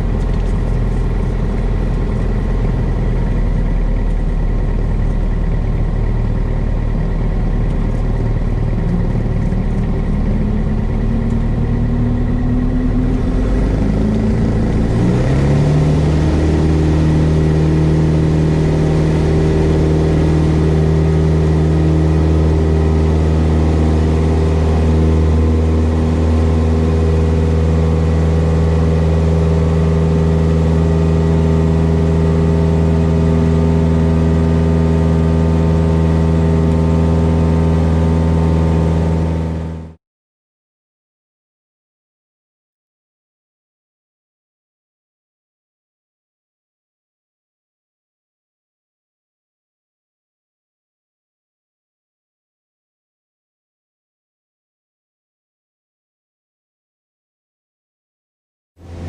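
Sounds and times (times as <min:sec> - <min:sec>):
small plane engine and propeller: 0:00.0 - 0:40.0, 0:58.8 - 0:59.0.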